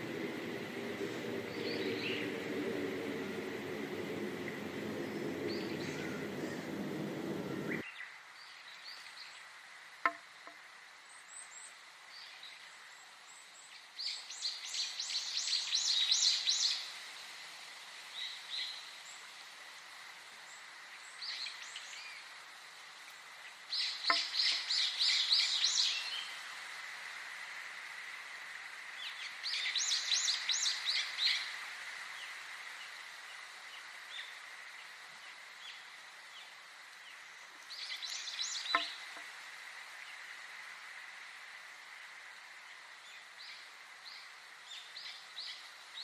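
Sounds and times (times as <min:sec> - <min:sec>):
low rushing noise: 0:00.0 - 0:07.8
bird chirps: 0:04.4 - 0:07.8.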